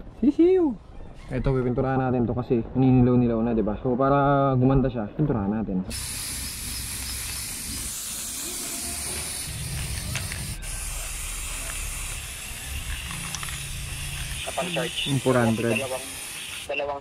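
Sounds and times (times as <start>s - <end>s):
spray paint can hissing: 5.9s - 17.0s.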